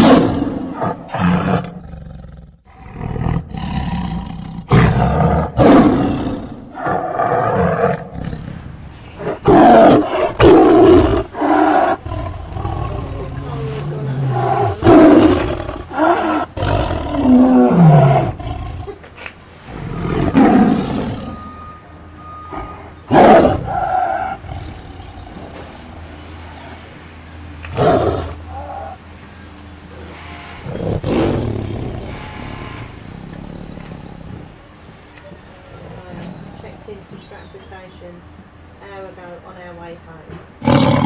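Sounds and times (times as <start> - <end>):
tiger roaring: 0.0 - 21.5, 22.5 - 25.8, 27.6 - 29.0, 30.0 - 34.7, 40.6 - 41.0.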